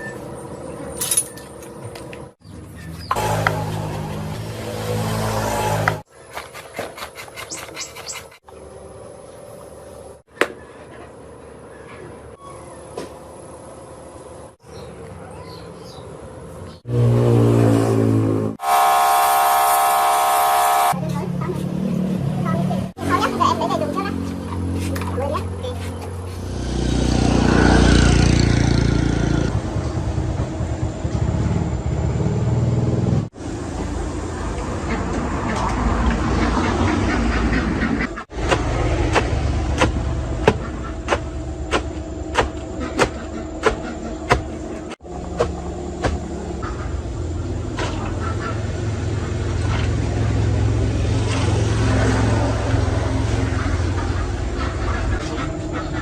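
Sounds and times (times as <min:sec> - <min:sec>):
small engine running rough: 0:03.2 - 0:06.1, 0:18.1 - 0:33.3.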